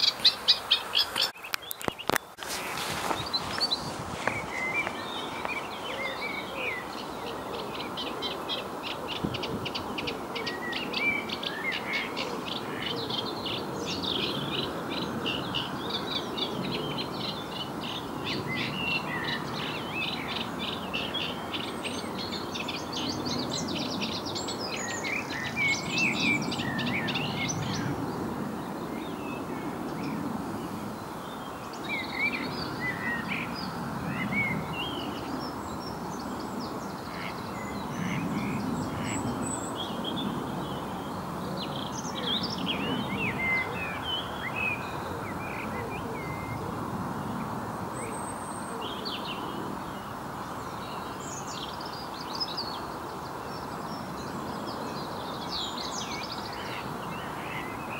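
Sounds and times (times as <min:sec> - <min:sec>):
songbirds singing: 0:00.0 - 0:57.9.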